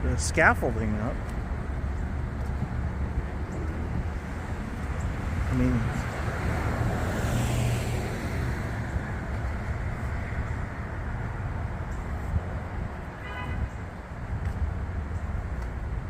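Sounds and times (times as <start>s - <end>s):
low traffic rumble: 0.0s - 16.0s
car passing with tyre hiss: 4.2s - 11.1s.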